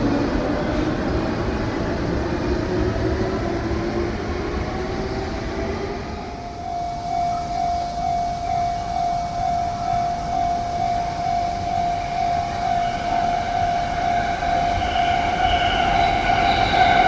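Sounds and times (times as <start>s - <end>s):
electric train running noise: 0.0s - 17.0s
electronic warning tone: 6.4s - 17.0s.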